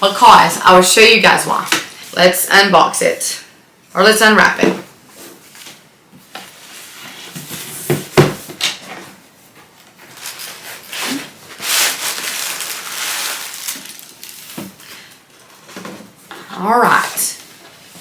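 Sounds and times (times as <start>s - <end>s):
packaging rustling and crinkling: 6.4s - 16.3s.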